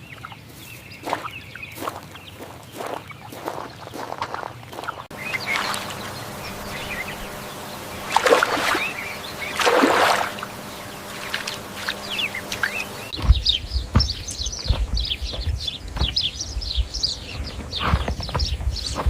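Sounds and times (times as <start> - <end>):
small birds chirping: 0.0 - 19.0
rushing noises: 5.1 - 16.2
low thumps: 5.4 - 19.0.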